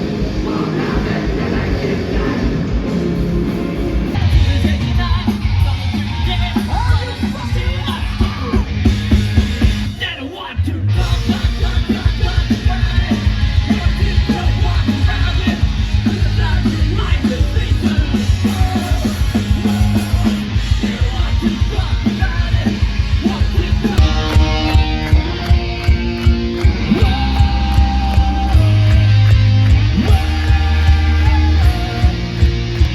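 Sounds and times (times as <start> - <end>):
heavy rock band playing: 0.0 - 32.9
yelled vocals: 0.0 - 32.9
pounding drums: 11.0 - 32.9.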